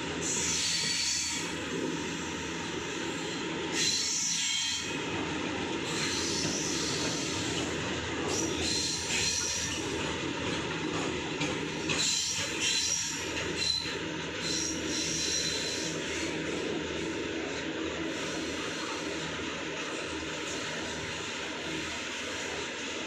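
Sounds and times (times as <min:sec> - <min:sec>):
train wheels rumbling on track: 0:00.0 - 0:23.0
shrill wheel squeals: 0:03.7 - 0:05.0, 0:05.9 - 0:07.5, 0:08.3 - 0:09.9, 0:11.9 - 0:16.4.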